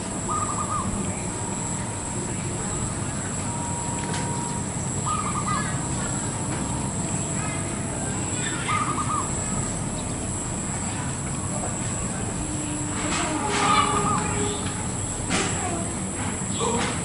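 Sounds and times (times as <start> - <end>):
dove cooing: 0.2 - 2.9, 4.9 - 6.4, 7.2 - 10.4, 13.4 - 14.6.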